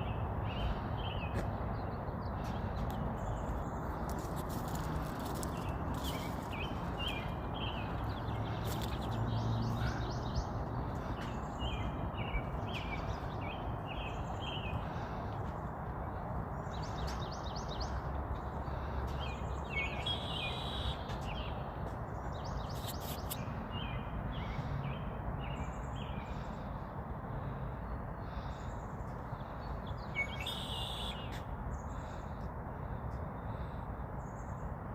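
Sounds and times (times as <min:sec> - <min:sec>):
birds chirping and chattering: 0:00.0 - 0:24.7.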